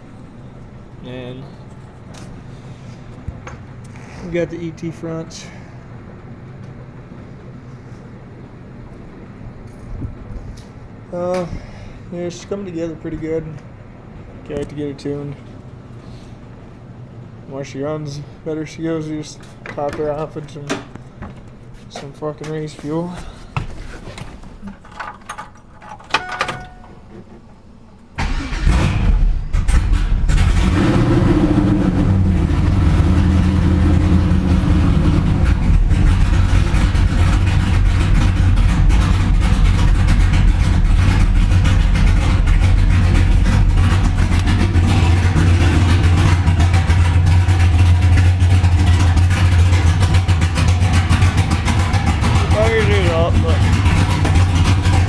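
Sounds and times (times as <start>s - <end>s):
car engine starting and idling: 24.8s - 55.0s.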